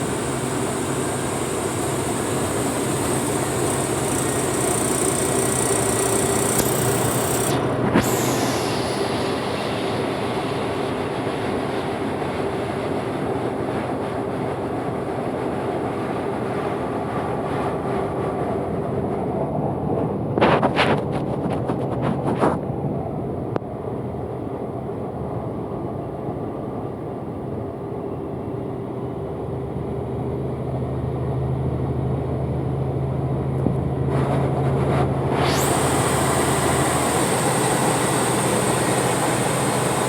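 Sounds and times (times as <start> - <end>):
truck engine running: 0.0 - 9.2.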